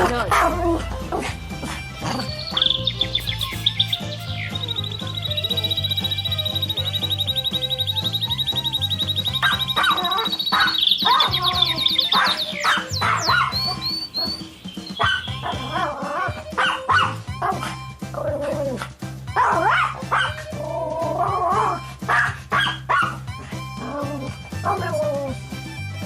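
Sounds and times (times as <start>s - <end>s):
background music: 0.0s - 26.0s
puppy yipping and whimpering: 1.9s - 18.6s, 21.3s - 23.3s.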